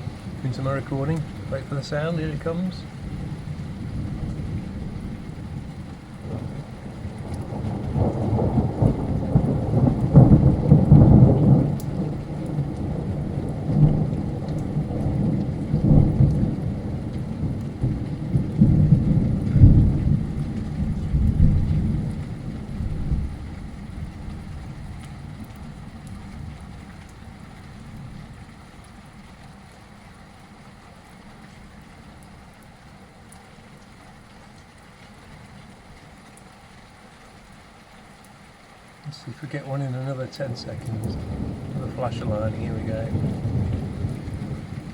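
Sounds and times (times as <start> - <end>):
rolling thunder: 0.0 - 28.4, 40.3 - 44.9
heavy rain: 0.0 - 44.9.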